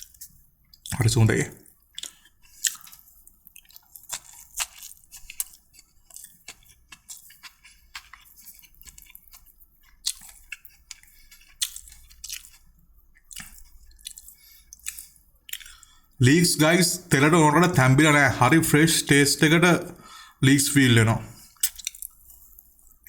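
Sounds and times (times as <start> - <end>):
person chewing food: 0.0 - 1.0, 1.6 - 18.2, 21.4 - 23.0
mouth clicks and crunches: 0.1 - 16.0, 21.4 - 23.0.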